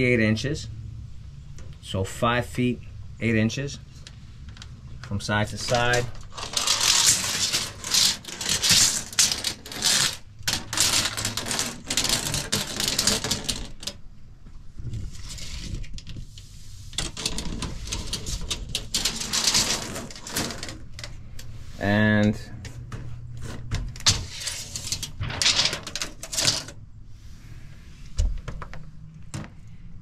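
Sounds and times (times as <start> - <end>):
tape measure rattling and scraping: 5.4 - 14.0, 14.9 - 21.2, 22.9 - 26.8.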